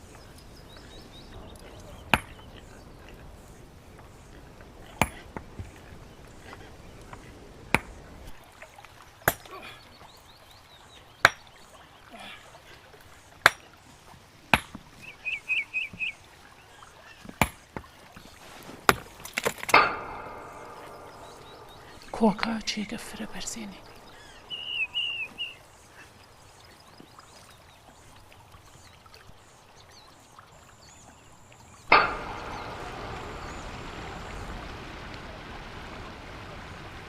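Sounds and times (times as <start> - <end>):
hammer striking stone: 2.1 - 2.4, 5.0 - 5.4, 14.5 - 14.8, 17.4 - 17.6, 18.9 - 22.1, 31.9 - 33.7.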